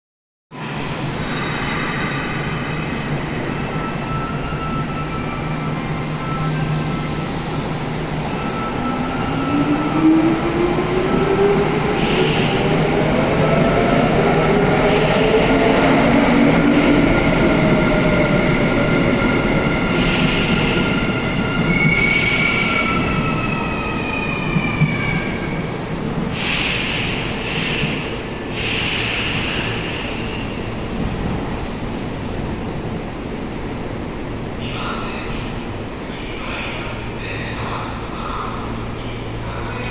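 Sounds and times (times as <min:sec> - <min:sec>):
train wheels squealing: 0:00.9 - 0:09.7, 0:19.1 - 0:30.6.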